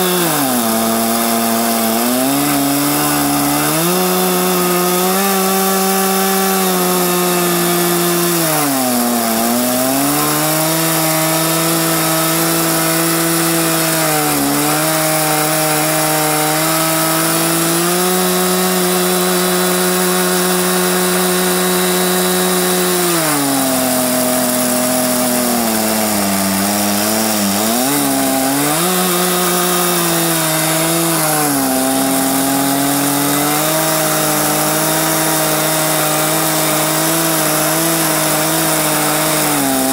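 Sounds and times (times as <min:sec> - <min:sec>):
chainsaw ripping along a log: 0:00.0 - 0:39.9.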